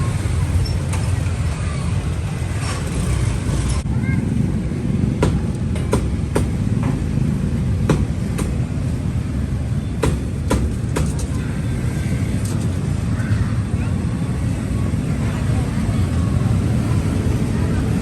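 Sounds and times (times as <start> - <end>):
steady low rumble: 0.0 - 10.5
sharp knocks: 5.2 - 7.1, 7.8 - 8.7, 10.0 - 11.4.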